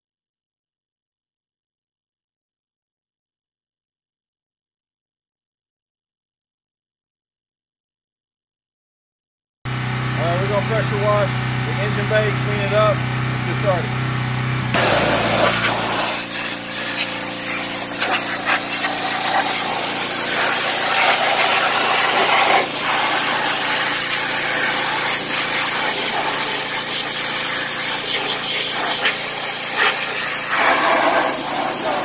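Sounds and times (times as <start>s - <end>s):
motor hum: 9.7s - 32.0s
pressure washer water jet spraying: 9.8s - 32.0s.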